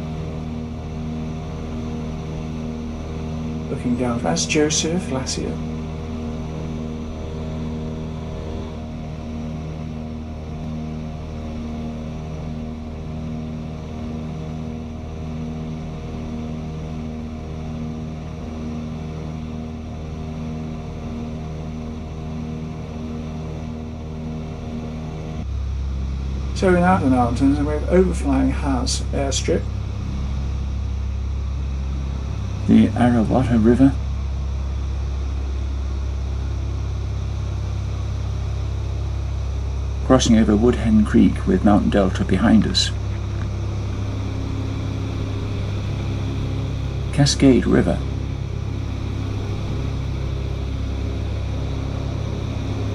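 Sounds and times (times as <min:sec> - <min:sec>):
propeller airplane engines droning: 0:00.0 - 0:52.9.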